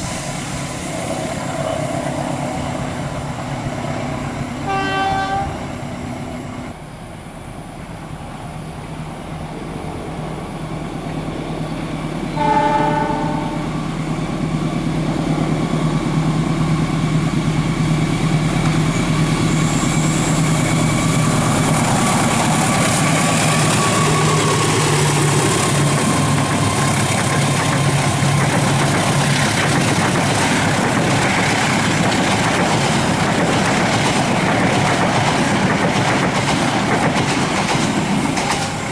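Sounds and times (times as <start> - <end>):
train rumble: 0.0 - 38.9
train horn: 4.6 - 5.6, 12.3 - 13.8
train wheels clattering: 18.4 - 38.9.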